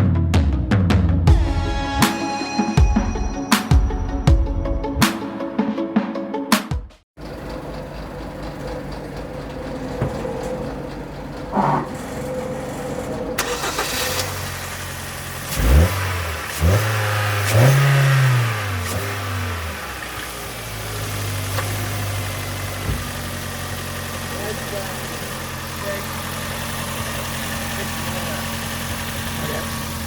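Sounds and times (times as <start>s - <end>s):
car engine starting and idling: 7.2s - 30.0s.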